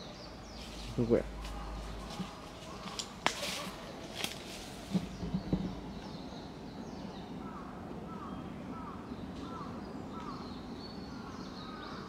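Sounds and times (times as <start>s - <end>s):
soft knocks: 4.9s - 6.1s.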